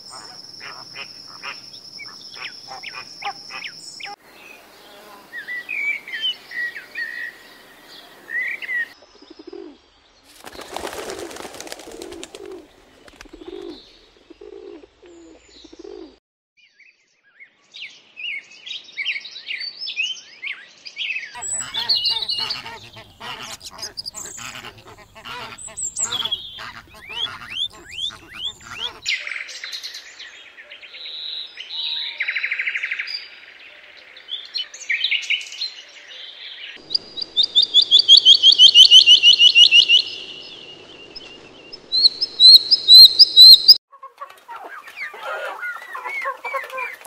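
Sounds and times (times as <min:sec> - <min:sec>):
ducks calling: 0:00.0 - 0:04.2, 0:21.4 - 0:29.1, 0:36.8 - 0:47.0
birds chirping: 0:00.0 - 0:16.2, 0:21.4 - 0:32.2, 0:33.0 - 0:47.0
wings flapping: 0:10.3 - 0:13.8, 0:21.4 - 0:29.1
pigeons cooing: 0:10.7 - 0:16.2, 0:21.4 - 0:29.1, 0:44.5 - 0:47.0
flamingos calling: 0:21.4 - 0:29.1.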